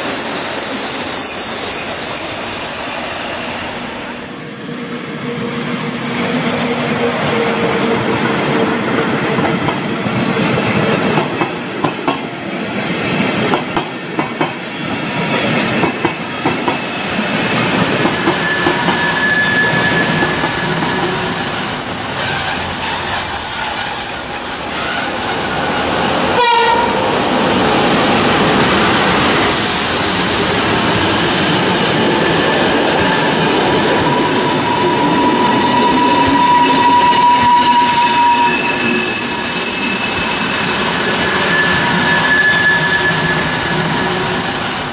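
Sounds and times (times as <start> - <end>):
high wheel squeal: 0.0 - 4.4, 15.8 - 26.6, 29.6 - 44.9.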